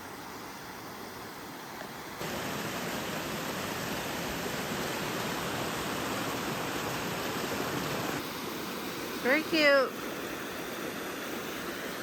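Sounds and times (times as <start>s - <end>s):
stream and waterfall rushing: 0.0s - 12.0s.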